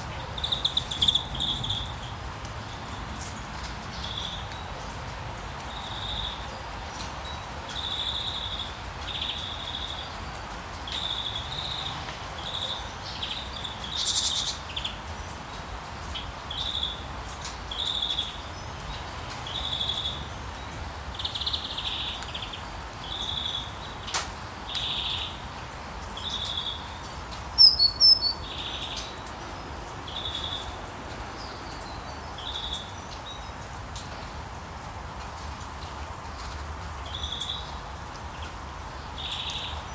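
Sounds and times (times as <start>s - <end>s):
rain hissing: 0.0s - 7.4s
bird calling in high notes: 27.6s - 28.4s
bird double chirp: 27.6s - 28.4s.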